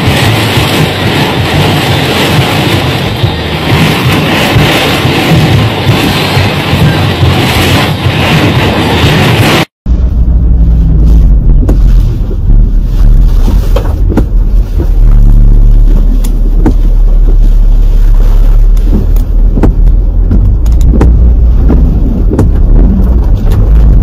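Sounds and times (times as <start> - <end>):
hailstones striking: 0.0 - 9.7
wind buffeting microphone: 0.0 - 24.0.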